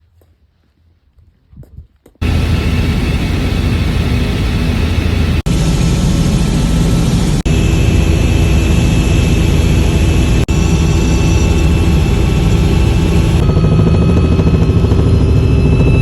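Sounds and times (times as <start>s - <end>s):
helicopter engine and rotor: 2.2s - 16.0s.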